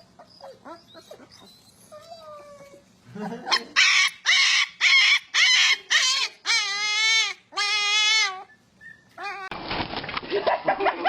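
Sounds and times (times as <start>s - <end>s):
animal crying: 3.5s - 9.6s.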